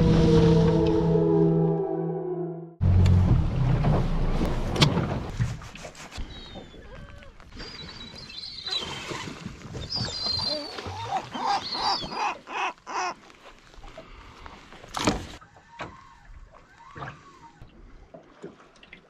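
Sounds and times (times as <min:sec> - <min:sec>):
birds calling: 0:09.8 - 0:13.3.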